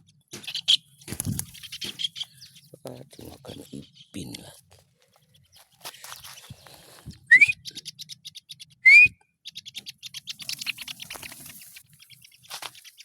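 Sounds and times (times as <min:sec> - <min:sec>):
rising whistles: 0:07.3 - 0:07.6, 0:08.8 - 0:09.2.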